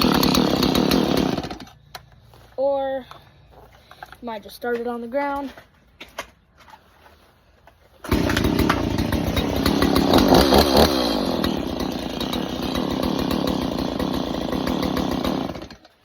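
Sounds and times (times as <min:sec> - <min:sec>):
chainsaw engine revving: 0:00.0 - 0:01.8, 0:08.0 - 0:16.0.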